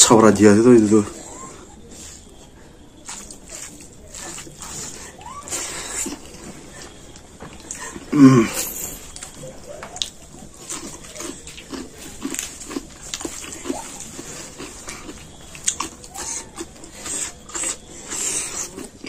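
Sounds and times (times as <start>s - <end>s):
man chewing and lip smacking: 1.8s - 19.0s
crisp crunches of vegetables: 3.0s - 9.4s, 10.0s - 19.0s.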